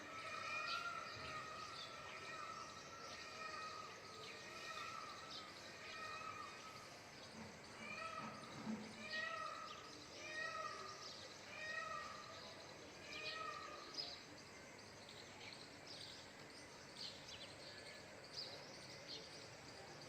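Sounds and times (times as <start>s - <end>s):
peacock wailing calls: 0.0s - 6.9s, 7.7s - 13.9s.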